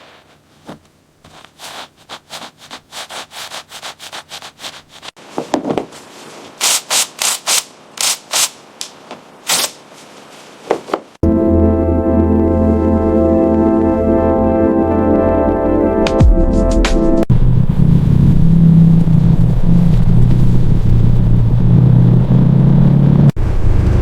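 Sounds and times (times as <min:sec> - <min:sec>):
abrasive rubbing strokes: 0:00.0 - 0:11.2
music with organ-like chords: 0:11.2 - 0:17.3.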